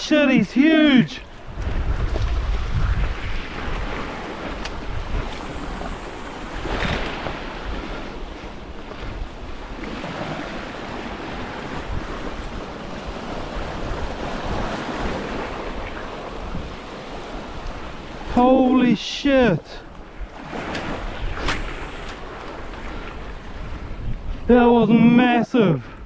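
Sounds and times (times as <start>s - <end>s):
surf washing against rocky shore: 0.2s - 18.4s
wind buffeting microphone: 0.7s - 18.4s, 19.8s - 25.1s.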